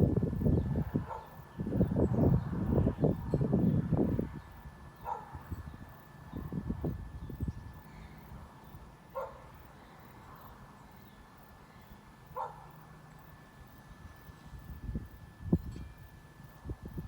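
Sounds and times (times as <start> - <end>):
low steady background noise: 0.0 - 17.0
dog barking: 1.0 - 1.4, 5.0 - 5.4, 9.2 - 9.5, 12.4 - 12.8.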